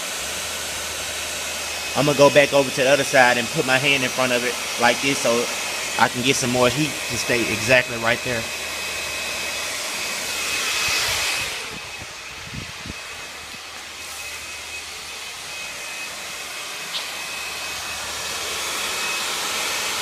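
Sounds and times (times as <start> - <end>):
hair dryer blowing: 0.0 - 20.0
thin high whine: 1.6 - 20.0.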